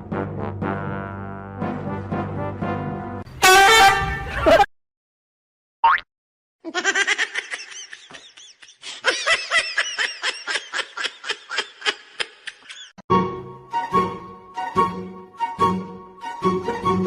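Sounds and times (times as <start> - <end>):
person laughing hard: 6.7 - 12.9.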